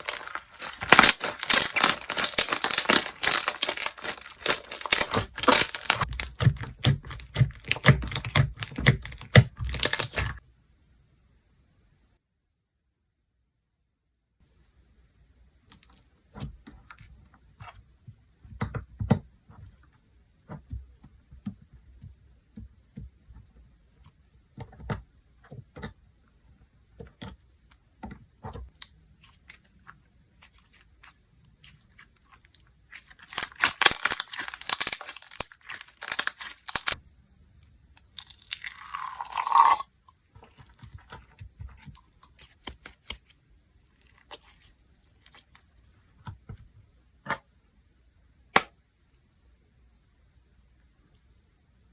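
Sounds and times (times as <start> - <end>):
hands squishing slime: 0.0 - 10.4, 28.0 - 37.0
slime crackling: 0.0 - 10.4, 32.9 - 37.0
slime tearing: 0.0 - 10.4, 32.9 - 37.0.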